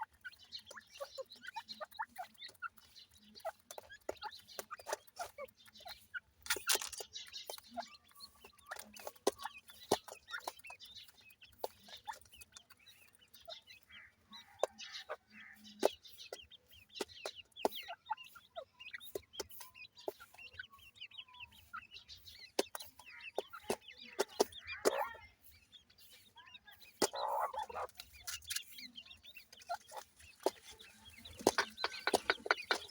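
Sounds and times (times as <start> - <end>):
chicks cheeping: 0.0 - 32.9
sharp taps: 30.4 - 32.9.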